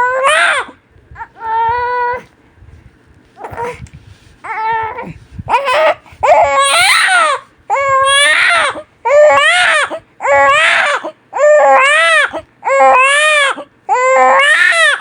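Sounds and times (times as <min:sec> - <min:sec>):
baby crying: 0:00.0 - 0:02.3, 0:04.4 - 0:15.0.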